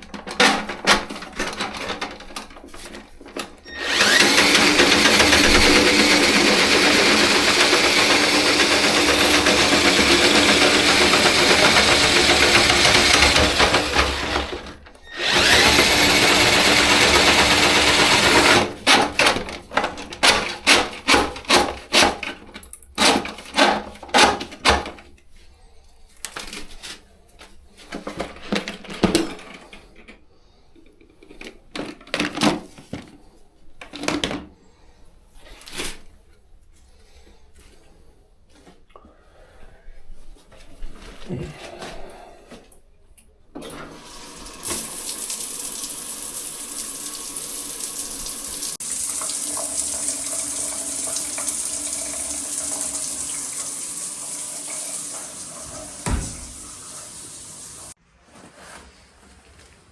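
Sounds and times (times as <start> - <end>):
drain-cleaning machine running: 3.7 - 19.0, 43.9 - 58.0
uneven knocks and clatters: 55.6 - 56.9.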